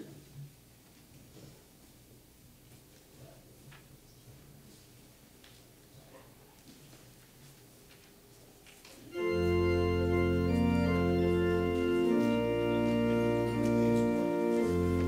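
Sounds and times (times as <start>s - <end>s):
organ playing sustained chords: 9.1s - 15.0s.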